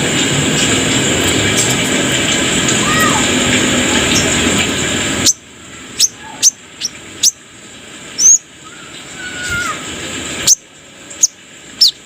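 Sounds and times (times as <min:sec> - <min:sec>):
bird chirping: 0:06.0 - 0:07.4, 0:08.2 - 0:08.4, 0:11.2 - 0:12.0.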